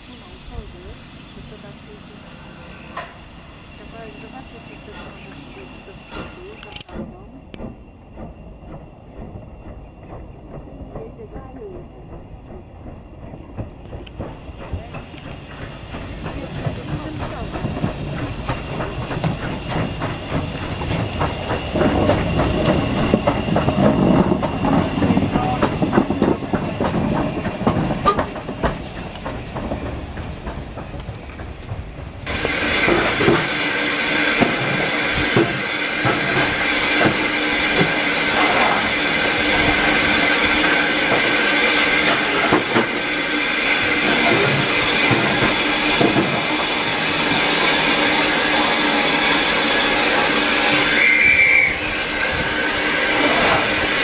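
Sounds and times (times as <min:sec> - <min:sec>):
steady hiss of steam: 0:00.0 - 0:54.0
train wheels rumbling on rails: 0:00.0 - 0:54.0.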